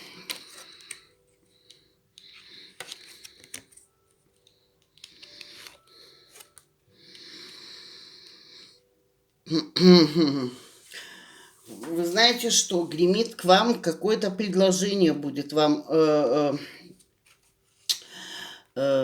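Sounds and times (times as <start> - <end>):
cards rustling and sliding: 0.0 - 6.7, 11.6 - 13.1.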